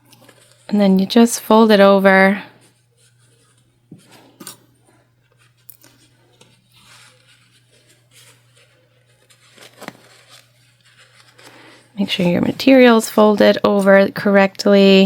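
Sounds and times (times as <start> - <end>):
fabric rustling: 2.6 - 13.0.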